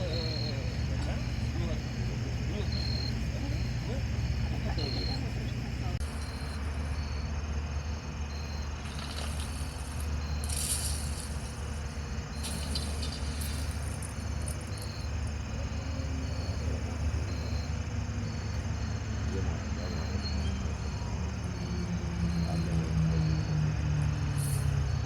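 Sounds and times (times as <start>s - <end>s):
insects chirping: 0.0s - 25.0s
steady low hum: 0.0s - 25.0s
high insect buzzes: 6.0s - 19.1s.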